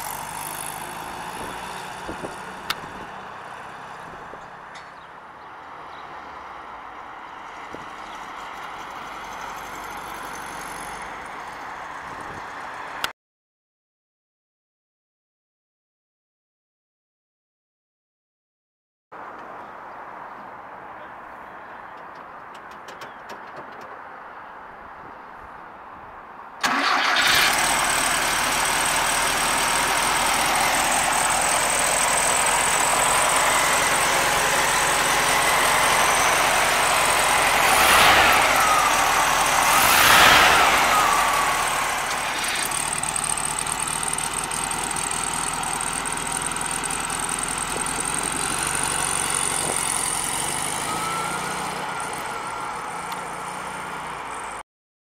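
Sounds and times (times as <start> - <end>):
car engine starting and revving: 26.6 - 54.6.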